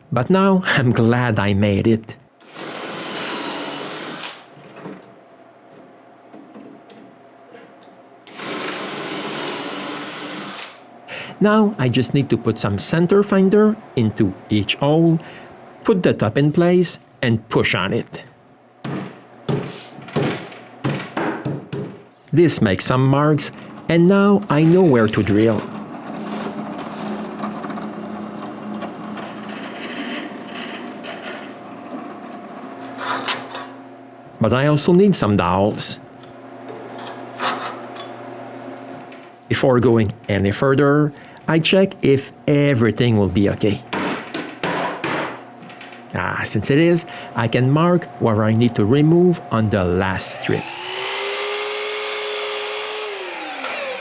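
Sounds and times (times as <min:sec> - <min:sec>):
electric drill boring into wood: 0:02.4 - 0:04.5, 0:08.3 - 0:10.8, 0:50.3 - 0:54.0.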